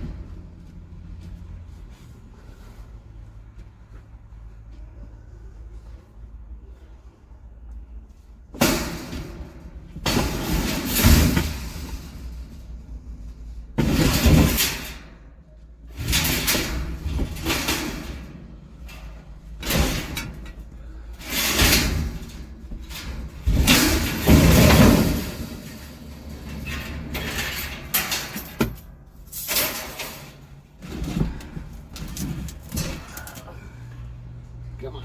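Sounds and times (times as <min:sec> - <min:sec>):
scrap metal clanking and scraping: 0:08.5 - 0:35.0.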